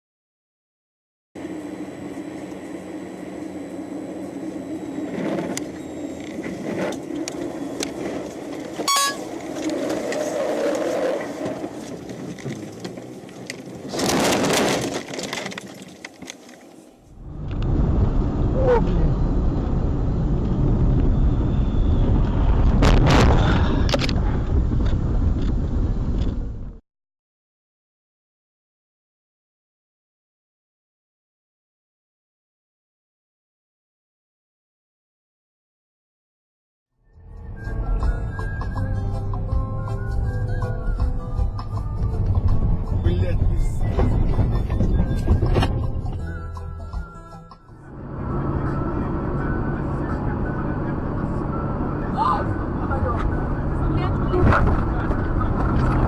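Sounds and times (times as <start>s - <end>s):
engine and road noise: 1.4s - 26.8s, 37.0s - 56.0s
heavy low rumble: 17.1s - 26.8s, 37.1s - 56.0s.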